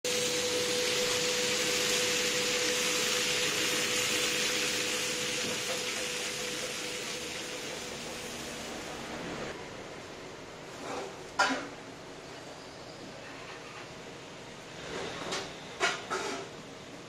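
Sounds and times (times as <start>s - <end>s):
buns sizzling in a pan: 0.1s - 8.9s.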